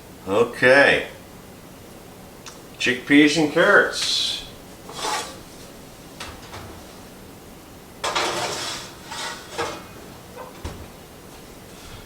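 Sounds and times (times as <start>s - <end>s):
rattling scrape: 4.9s - 5.5s, 8.0s - 9.9s
dishes and pan knocking: 8.0s - 10.8s.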